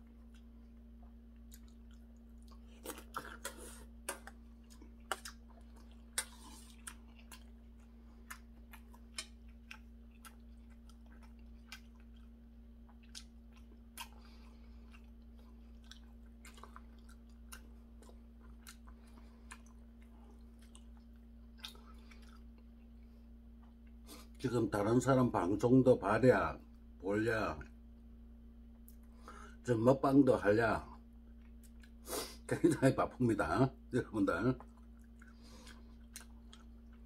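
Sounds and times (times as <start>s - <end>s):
man chewing food: 0.0s - 24.4s, 31.0s - 32.5s, 34.4s - 37.0s
steady low hum: 0.0s - 37.0s.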